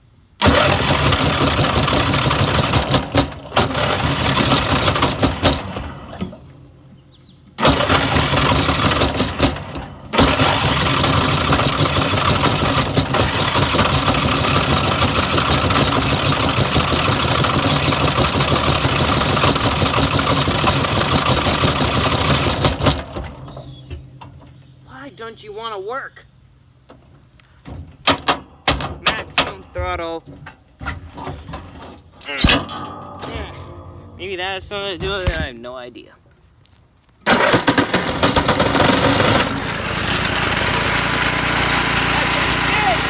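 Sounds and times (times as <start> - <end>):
lawn mower engine running: 0.4 - 25.2, 37.2 - 43.0.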